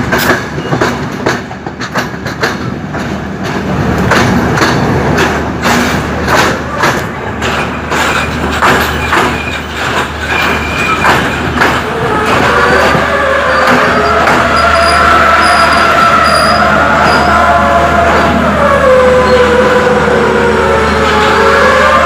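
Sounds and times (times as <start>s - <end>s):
wheels clacking over rail joints: 0.0s - 16.0s
train wheels rumbling: 0.0s - 22.0s
wheels squealing: 7.4s - 19.8s.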